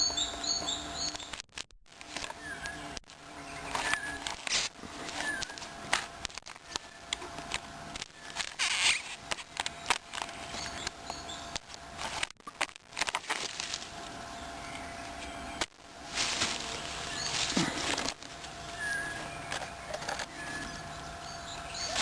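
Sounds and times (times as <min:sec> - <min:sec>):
footsteps through dry leaves: 0:15.9 - 0:19.3.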